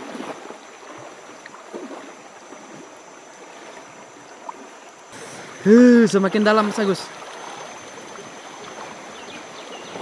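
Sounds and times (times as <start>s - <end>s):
rocky river rushing: 5.2s - 10.0s.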